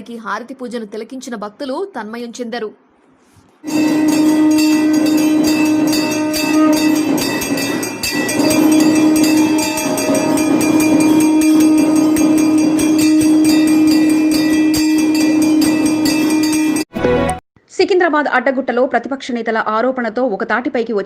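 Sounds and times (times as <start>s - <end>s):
horn-like droning tone: 3.6s - 16.8s
bells clanging rapidly: 3.6s - 16.9s.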